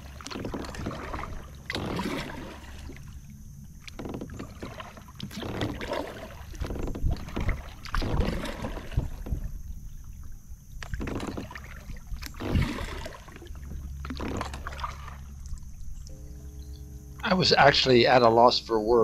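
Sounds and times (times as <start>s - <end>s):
paddle splashing in water: 0.0s - 18.2s
low rumble: 6.2s - 19.0s.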